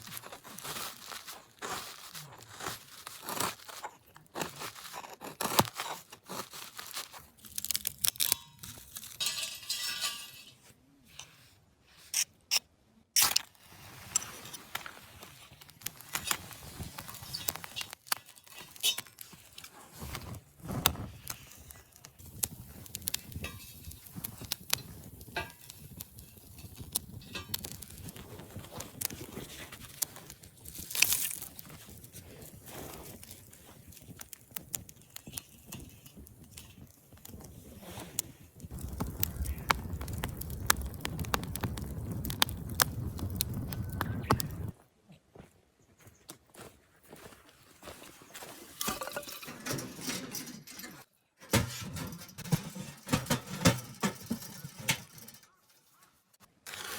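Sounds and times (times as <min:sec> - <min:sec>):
rustling: 0:00.0 - 0:12.0, 0:13.6 - 0:44.8.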